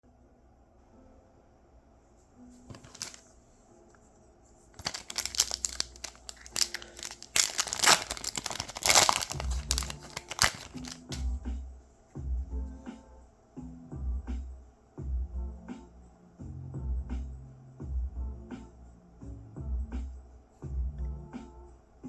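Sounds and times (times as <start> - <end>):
foil wrapper crinkling and tearing: 2.7 - 3.2, 4.8 - 11.2.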